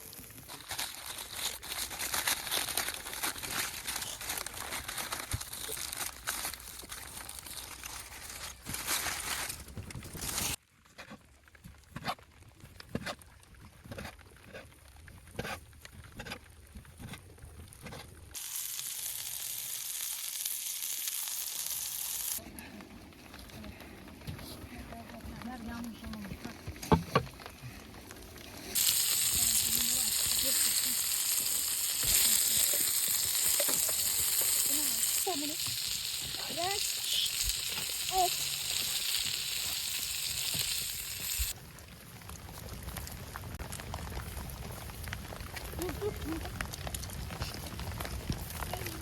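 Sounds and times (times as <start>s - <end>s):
meat sizzling on hot stone: 18.3s - 22.4s, 28.3s - 41.6s
steady hiss: 28.6s - 41.6s.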